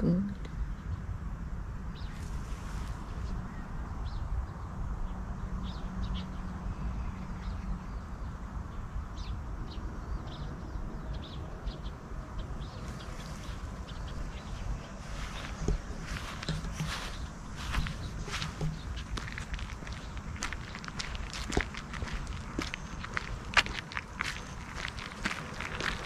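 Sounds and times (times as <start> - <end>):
small birds chirping: 0.0 - 26.0
footsteps: 14.9 - 26.0.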